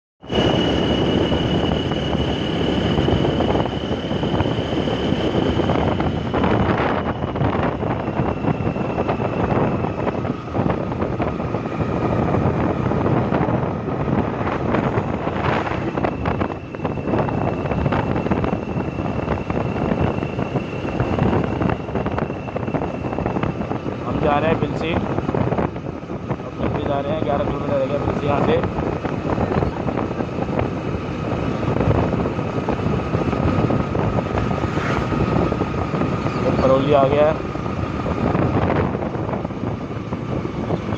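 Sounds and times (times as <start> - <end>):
faint high whine: 0.2 - 12.8
motorcycle road and engine noise: 0.2 - 40.9
wind buffeting microphone: 0.2 - 40.9.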